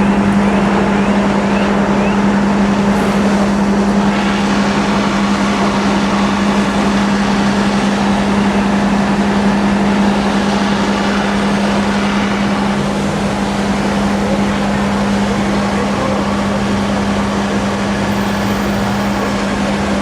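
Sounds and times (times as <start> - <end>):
vehicle engine running: 2.6 - 7.3.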